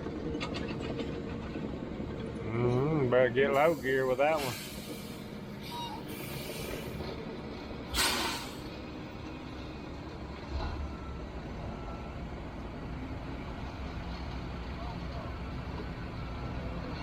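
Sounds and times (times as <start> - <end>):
truck diesel engine running: 0.0 - 17.0
air brake hiss: 3.6 - 7.0, 7.9 - 8.7.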